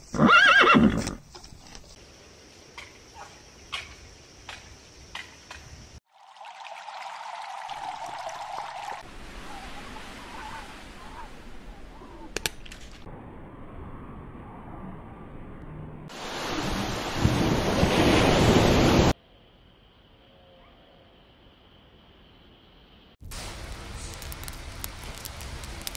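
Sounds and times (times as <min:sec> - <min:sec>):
ocean surf: 0:07.9 - 0:12.3, 0:16.1 - 0:19.2.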